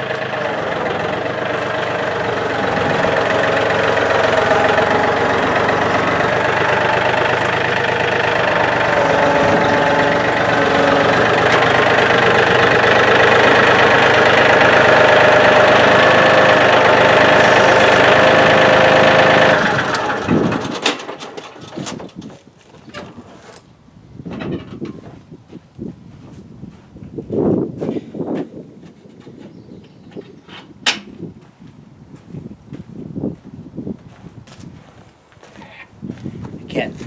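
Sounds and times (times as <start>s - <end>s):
tractor diesel engine running: 0.0s - 21.9s.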